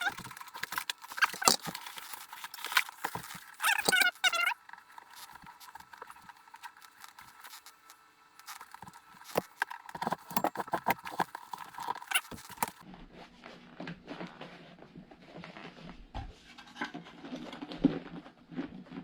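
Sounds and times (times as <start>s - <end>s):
hands handling radio parts: 0.0s - 12.8s.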